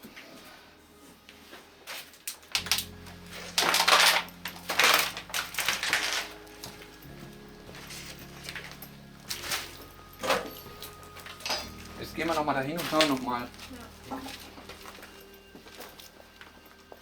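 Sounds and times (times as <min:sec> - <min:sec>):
loose hard objects clattering: 0:02.3 - 0:16.2
low steady drone: 0:02.5 - 0:17.0.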